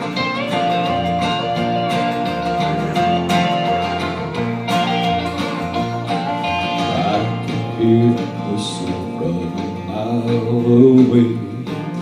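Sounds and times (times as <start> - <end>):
country band music: 0.0 - 12.0
guitar: 0.0 - 12.0
person singing: 6.2 - 12.0.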